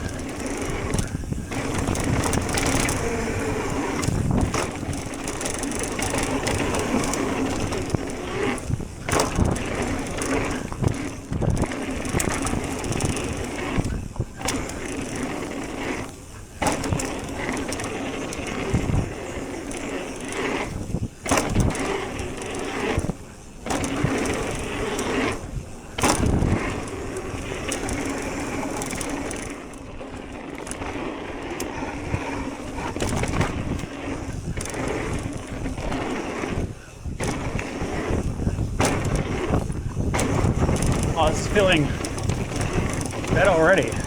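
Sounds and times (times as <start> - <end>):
bike clunking and rattling: 0.0 - 44.0
tyres rushing on dirt: 0.0 - 44.0.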